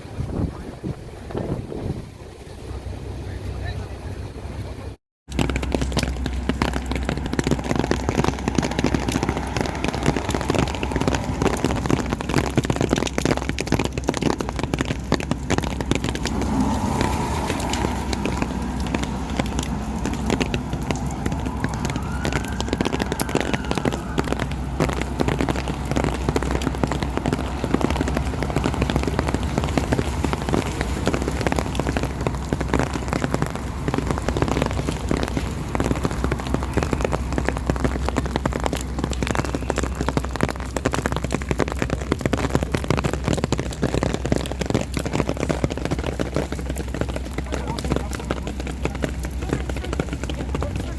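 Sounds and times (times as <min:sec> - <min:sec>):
low hum: 0:02.2 - 0:42.2
rain drops hitting a surface: 0:04.7 - 0:50.9.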